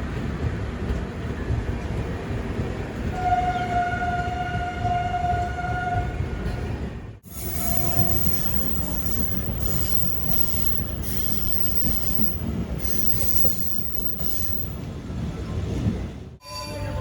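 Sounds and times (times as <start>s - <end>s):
train rumbling and rattling on rails: 0.0s - 17.0s
shifting hiss: 7.3s - 14.8s.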